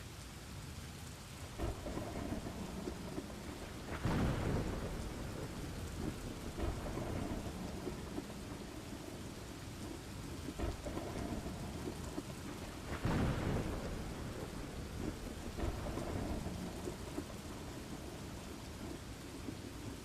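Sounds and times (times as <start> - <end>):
steady rain: 0.0 - 20.0
thunder rumble: 1.5 - 20.0.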